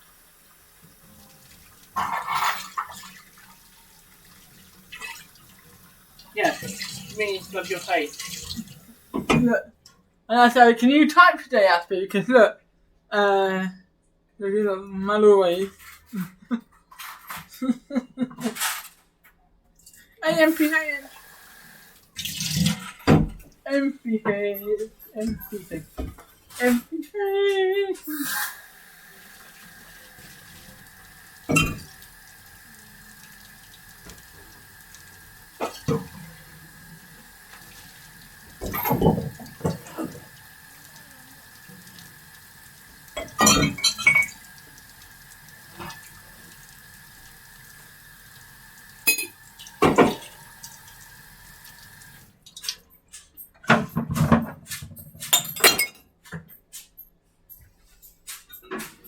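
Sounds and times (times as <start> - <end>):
household knocks and clatter: 53.6 - 56.8.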